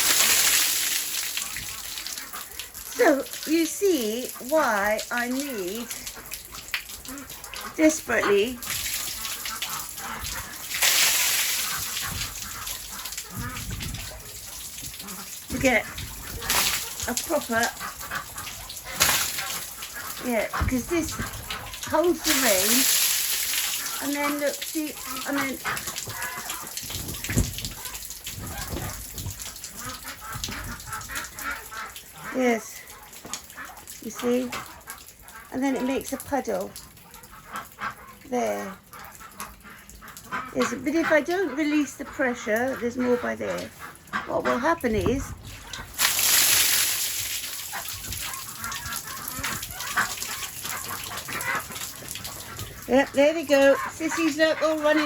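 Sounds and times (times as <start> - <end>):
water splashing down: 0.0 - 32.5, 44.6 - 55.0
rain pattering on a cover: 0.0 - 40.6, 43.4 - 55.0
ducks calling: 1.4 - 55.0.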